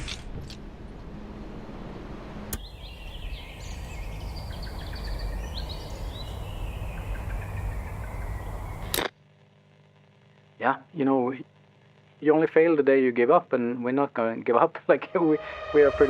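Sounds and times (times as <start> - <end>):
wind: 0.0 - 9.1.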